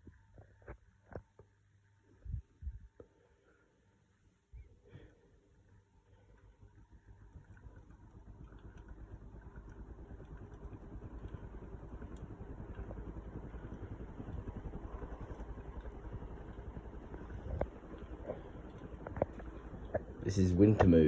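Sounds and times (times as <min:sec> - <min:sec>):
ceiling fan whooshing: 0:04.6 - 0:21.0.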